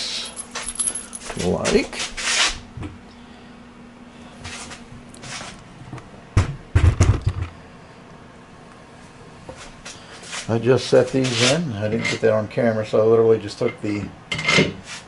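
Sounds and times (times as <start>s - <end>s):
parts rustling: 0.4s - 2.5s
light scrapes: 11.1s - 11.6s.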